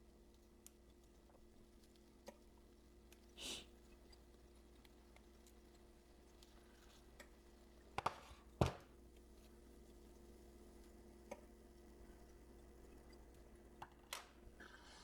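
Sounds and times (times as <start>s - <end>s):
faint steady hum: 0.0s - 15.0s
light tick: 0.3s - 3.3s.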